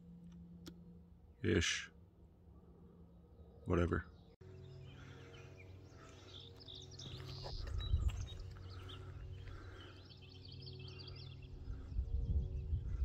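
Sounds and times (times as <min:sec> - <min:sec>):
bird trill: 0:03.3 - 0:13.0
small birds chirping: 0:03.3 - 0:13.0.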